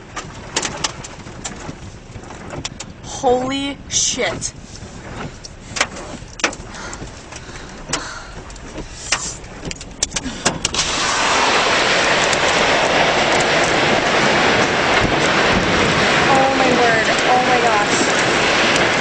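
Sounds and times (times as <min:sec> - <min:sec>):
loud rush of wind: 0:09.2 - 0:19.0.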